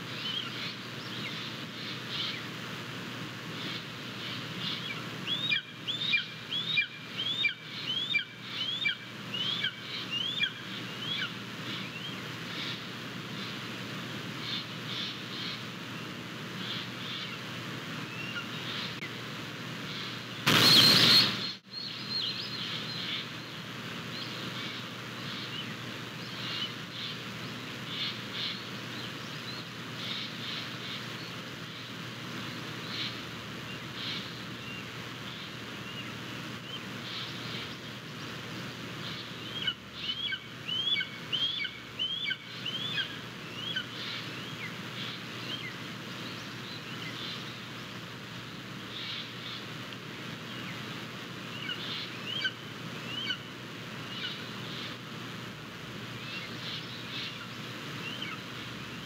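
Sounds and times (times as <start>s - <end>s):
birds chirping and calling: 3.6s - 13.6s, 19.9s - 23.6s, 39.0s - 47.8s, 51.5s - 55.0s, 56.2s - 59.0s
brief loud rush of noise: 20.4s - 21.6s.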